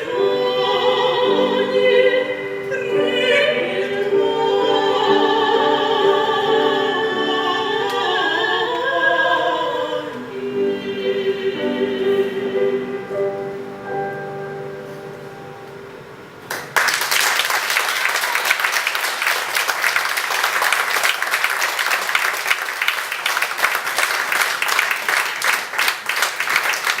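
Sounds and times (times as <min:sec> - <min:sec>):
operatic duet singing: 0:00.0 - 0:13.8
audience applause: 0:16.5 - 0:27.0.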